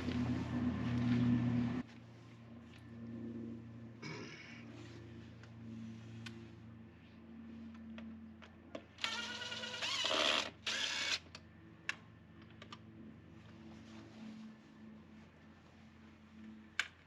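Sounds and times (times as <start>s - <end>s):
power drill running: 9.0s - 11.2s.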